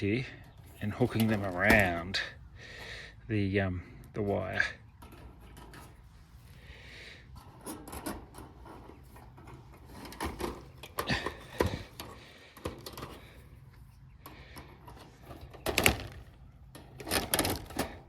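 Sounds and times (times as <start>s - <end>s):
wire mesh rattling and clinking: 14.3s - 18.0s.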